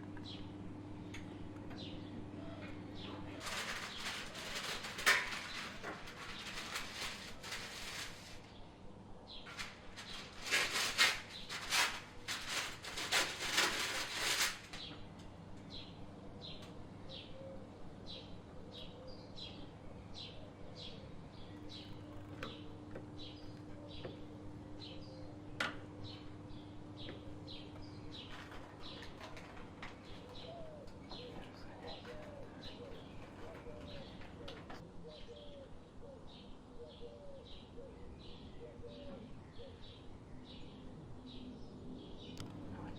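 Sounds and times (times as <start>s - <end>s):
doves cooing: 0.0s - 42.9s
rustling noise: 3.4s - 8.6s, 9.3s - 15.2s, 27.5s - 34.8s
small bird chirping: 18.1s - 25.4s.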